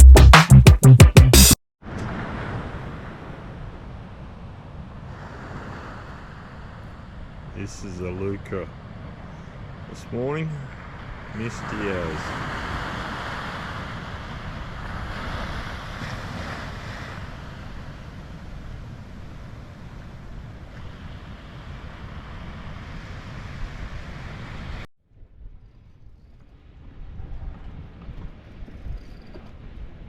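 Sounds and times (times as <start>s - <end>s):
surf washing against shore: 1.8s - 24.9s
wind on microphone: 10.7s - 30.0s.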